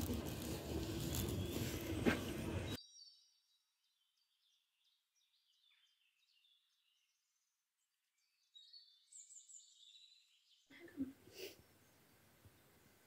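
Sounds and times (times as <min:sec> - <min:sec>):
faint high bird chirps: 0:02.6 - 0:10.8.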